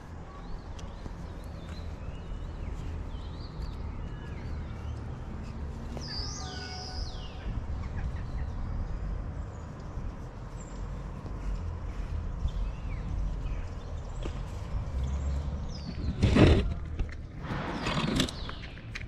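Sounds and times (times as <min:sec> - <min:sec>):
birds chirping and whistling: 0:06.0 - 0:07.5, 0:17.4 - 0:19.0
steady low rumble: 0:17.3 - 0:19.0.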